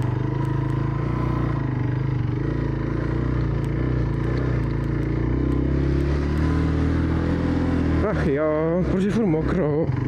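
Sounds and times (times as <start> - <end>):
motorcycle engine running low: 0.0 - 10.0.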